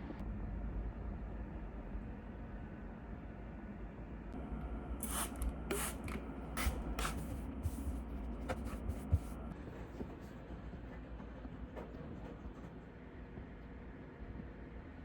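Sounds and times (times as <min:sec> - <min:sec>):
hissing cleaning strokes on cutlery: 0:05.0 - 0:07.9.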